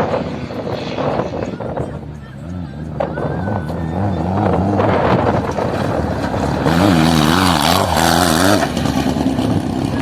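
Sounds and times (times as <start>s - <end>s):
wind noise rushing: 0.0s - 2.2s, 2.9s - 8.5s
motorcycle engine revving: 0.0s - 10.0s.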